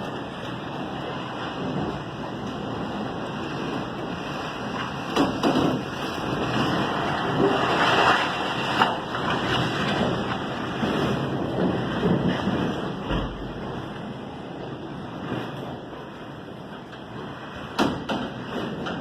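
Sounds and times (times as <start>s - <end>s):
storm wind buffeting microphone: 0.0s - 19.0s.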